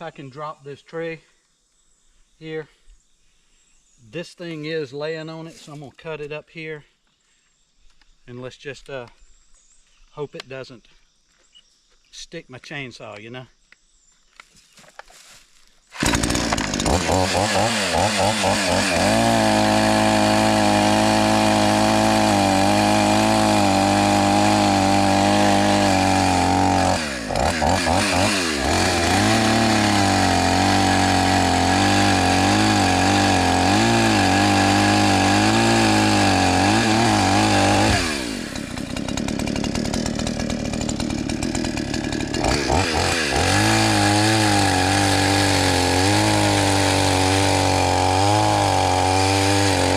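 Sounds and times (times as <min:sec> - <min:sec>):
chainsaw cutting a tree: 0:15.9 - 0:49.9.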